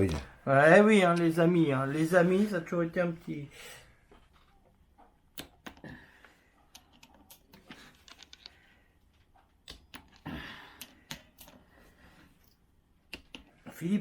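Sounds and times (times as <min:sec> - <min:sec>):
metal parts clicking: 0:06.6 - 0:11.6.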